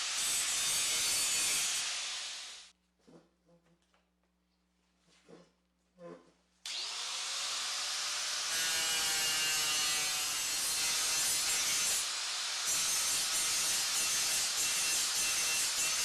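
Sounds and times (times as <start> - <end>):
power tool scraping metal: 0.0 - 2.6, 6.7 - 16.0.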